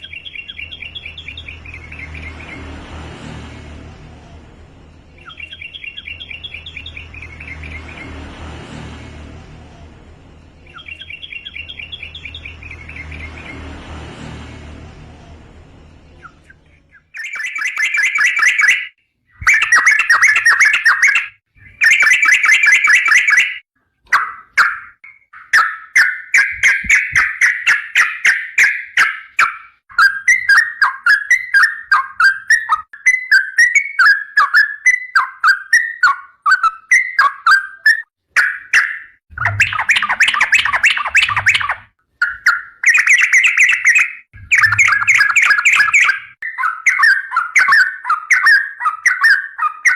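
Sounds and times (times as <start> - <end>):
bulbul chattering song: 0.0 - 2.7, 4.8 - 8.3, 10.4 - 13.7, 15.2 - 49.9
bird warbling: 16.2 - 49.9.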